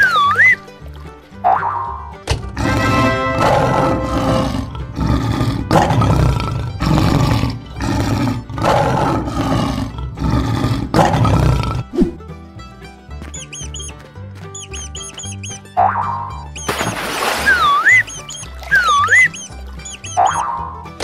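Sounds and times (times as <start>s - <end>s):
background music: 0.0s - 21.0s
lion roaring: 2.6s - 12.0s.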